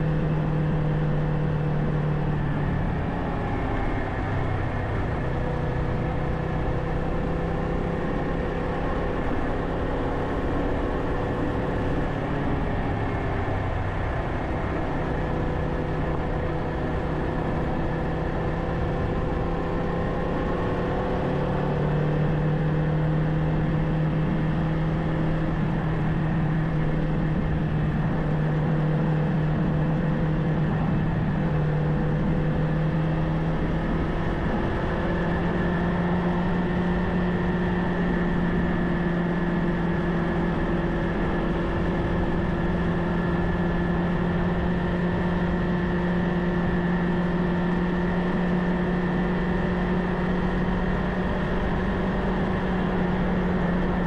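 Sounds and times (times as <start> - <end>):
motorcycle engine running: 0.0 - 54.0
road noise: 0.0 - 54.0.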